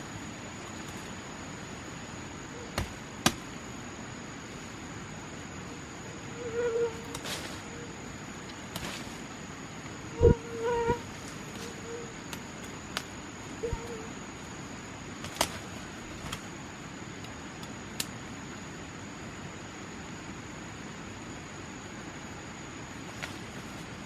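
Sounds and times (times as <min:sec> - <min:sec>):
high-pitched insect drone: 0:05.7 - 0:08.2, 0:13.4 - 0:14.4.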